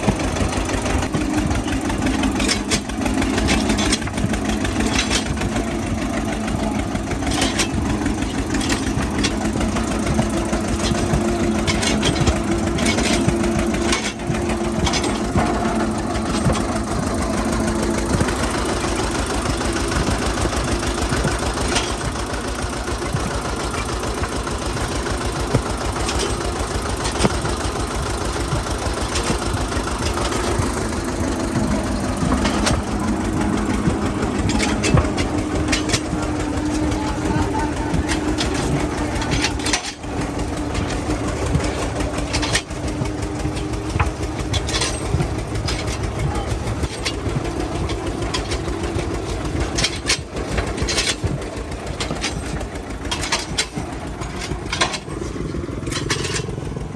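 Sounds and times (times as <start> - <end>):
tractor diesel engine chugging: 0.0 - 56.9.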